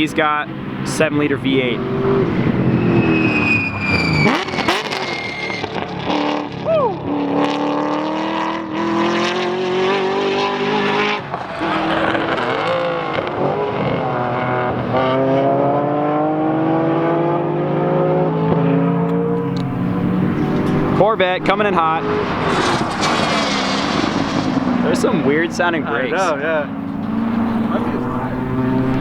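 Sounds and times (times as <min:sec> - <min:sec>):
race car engine accelerating: 0:00.0 - 0:29.0
brief high squeal: 0:02.8 - 0:05.9.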